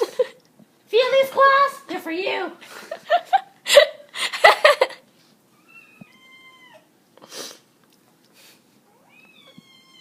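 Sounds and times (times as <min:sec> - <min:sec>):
kitten meowing: 0:05.6 - 0:06.9, 0:08.9 - 0:10.0.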